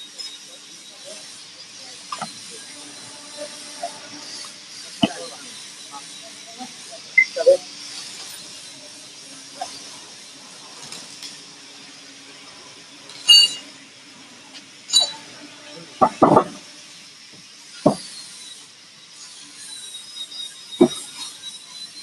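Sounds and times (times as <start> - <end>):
machine hum: 2.0 - 6.2.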